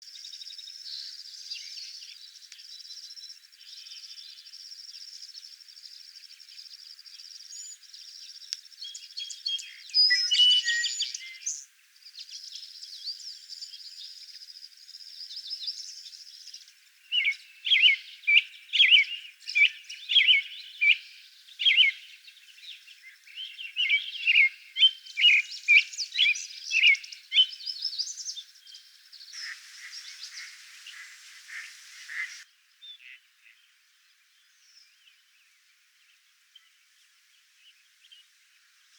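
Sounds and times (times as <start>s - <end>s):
bird whistling song: 8.8s - 11.6s, 23.3s - 28.8s, 29.4s - 33.2s
high thin bird chirping: 29.4s - 32.4s.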